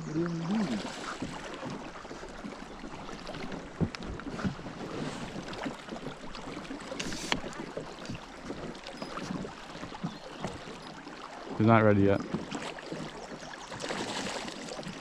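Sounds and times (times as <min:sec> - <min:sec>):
sharp knocks on boat: 0:03.3 - 0:10.9.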